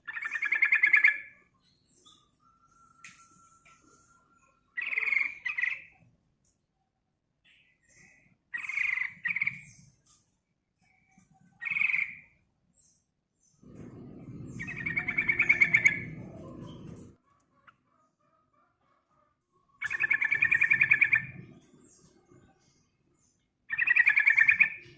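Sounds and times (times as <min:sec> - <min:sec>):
bird singing bubbly phrases: 0:00.0 - 0:01.4, 0:07.5 - 0:09.8, 0:13.6 - 0:16.9, 0:19.8 - 0:22.3, 0:23.7 - 0:24.9
low rumble: 0:13.6 - 0:17.2.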